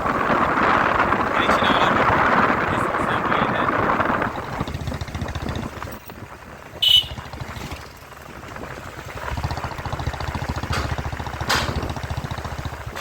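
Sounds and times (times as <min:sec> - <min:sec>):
motorcycle engine exhaust: 0:00.0 - 0:13.0.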